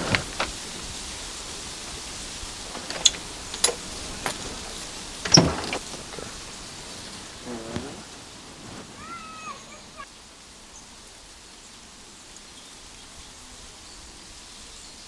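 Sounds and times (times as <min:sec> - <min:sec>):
rain hissing: 0:00.0 - 0:11.2
high animal call: 0:08.9 - 0:10.1.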